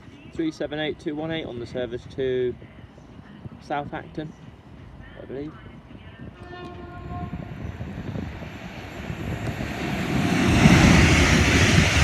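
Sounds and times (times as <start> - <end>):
train passing: 6.4 - 12.0
steady whine: 6.5 - 12.0.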